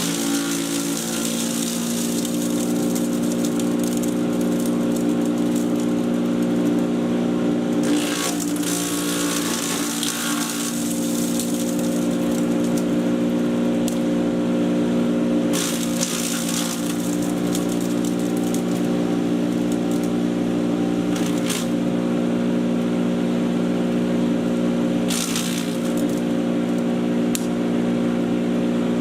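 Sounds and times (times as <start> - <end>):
crackling bursts: 0.0 - 6.9, 7.7 - 14.1, 15.5 - 20.2, 21.1 - 21.8, 25.1 - 26.3
chipper shredder humming drone: 0.0 - 29.0.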